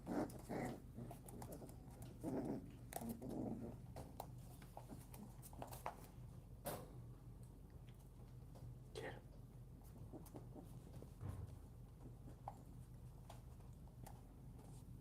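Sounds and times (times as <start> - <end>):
puppies grunting: 0.0 - 4.2
puppies scuffling: 0.0 - 6.6, 9.8 - 15.0.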